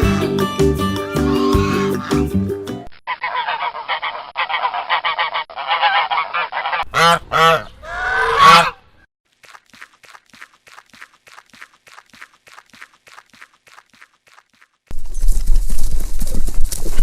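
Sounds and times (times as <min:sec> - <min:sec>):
geese honking: 0:03.1 - 0:08.9.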